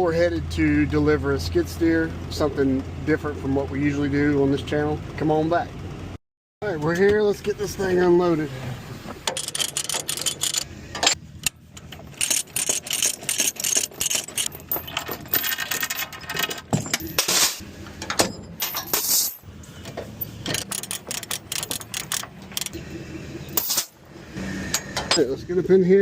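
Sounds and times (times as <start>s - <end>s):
metal chains rattling: 9.3s - 19.5s, 20.1s - 22.8s, 23.6s - 24.0s.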